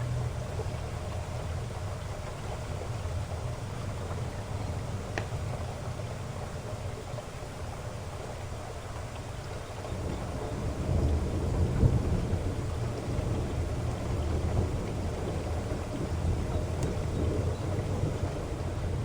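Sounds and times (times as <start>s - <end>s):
heavy rain falling: 0.0s - 19.0s
thunder rumbling: 9.8s - 19.0s.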